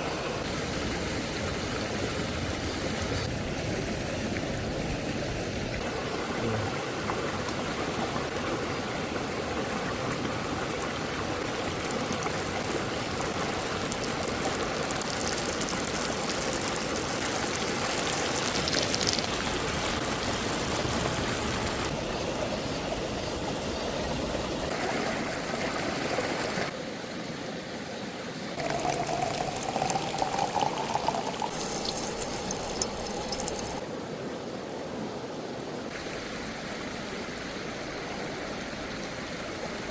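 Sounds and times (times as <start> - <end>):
running water rushing: 5.8 - 22.0, 28.6 - 33.8.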